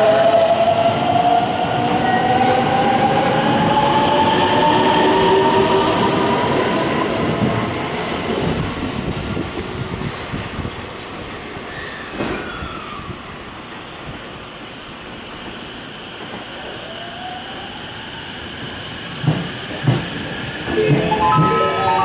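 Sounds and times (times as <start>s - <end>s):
train wheels clattering on rails: 19.1s - 21.6s.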